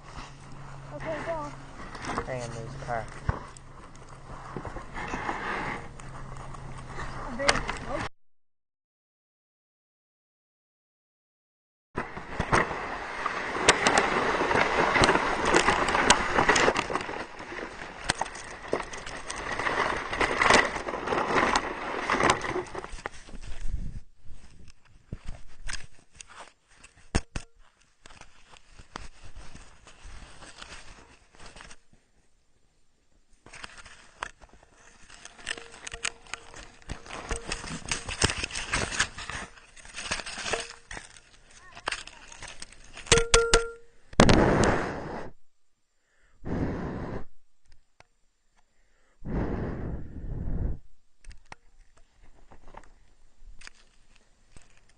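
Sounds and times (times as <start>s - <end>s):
sled scraping over snow: 0.0s - 8.0s, 12.0s - 24.5s
sled knocks and crunches: 12.0s - 31.9s, 33.4s - 43.8s.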